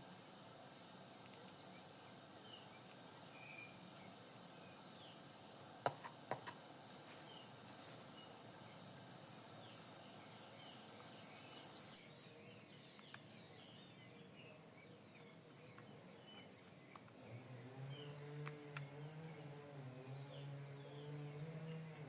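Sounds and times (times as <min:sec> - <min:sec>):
faint background hiss: 0:00.0 - 0:22.0
bird chirps: 0:01.1 - 0:22.0
sharp clicks: 0:01.2 - 0:01.8, 0:12.9 - 0:13.3, 0:15.8 - 0:19.4.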